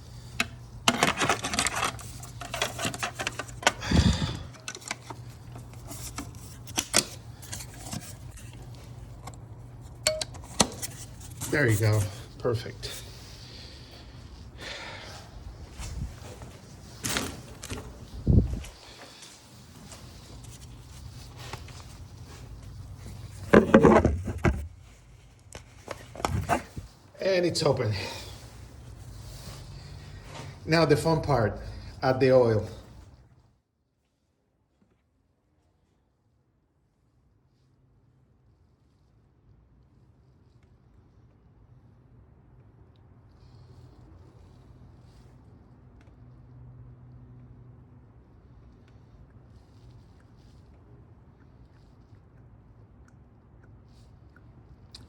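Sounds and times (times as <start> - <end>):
steady low hum: 0.0 - 33.4
plastic and metal parts rattling: 0.4 - 9.4, 23.3 - 24.7
oil filler cap clicking and rattling: 4.5 - 11.0.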